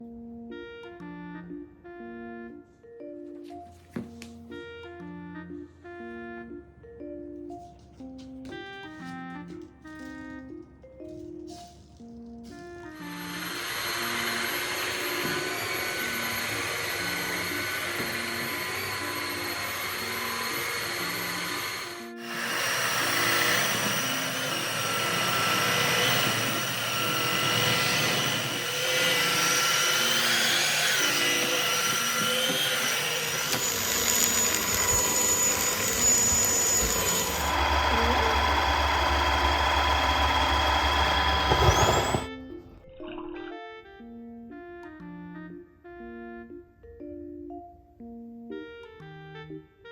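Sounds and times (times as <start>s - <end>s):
soft marimba background music: 0.0s - 21.8s, 42.5s - 49.9s
floor vacuum motor whine: 12.4s - 42.4s.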